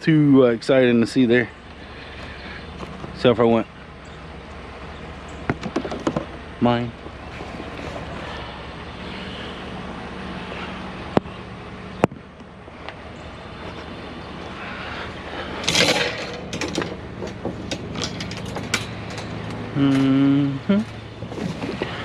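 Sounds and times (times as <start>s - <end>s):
truck engine humming: 0.0s - 22.0s
rattling and clatter: 5.3s - 6.4s, 13.6s - 20.0s, 20.8s - 22.0s.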